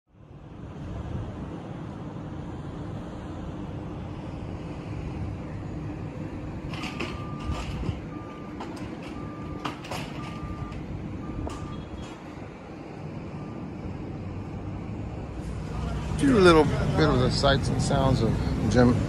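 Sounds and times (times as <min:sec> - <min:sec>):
engine and traffic rumble: 0:00.1 - 0:19.0
clicks and rattles: 0:06.7 - 0:10.8
reversing alarm beeping: 0:06.7 - 0:12.3, 0:13.0 - 0:14.0.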